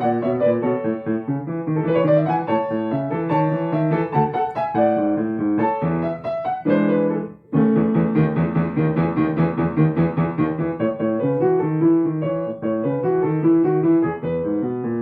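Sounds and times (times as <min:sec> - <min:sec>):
rapid solo piano: 0:00.0 - 0:15.0.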